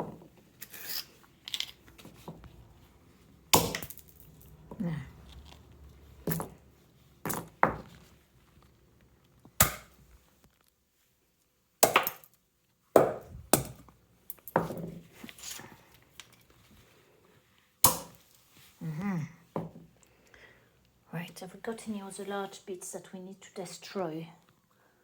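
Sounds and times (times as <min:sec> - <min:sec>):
walnut shells cracking: 0:01.4 - 0:01.8, 0:03.6 - 0:06.6, 0:11.8 - 0:12.4.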